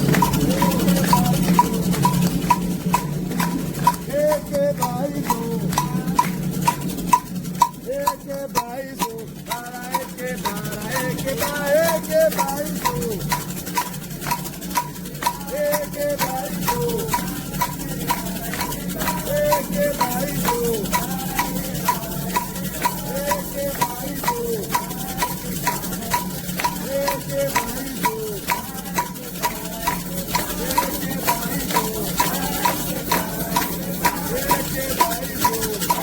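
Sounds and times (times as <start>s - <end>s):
drums: 0.0s - 36.0s
ringing metal bell: 0.0s - 36.0s
voices singing a chant: 0.0s - 36.0s.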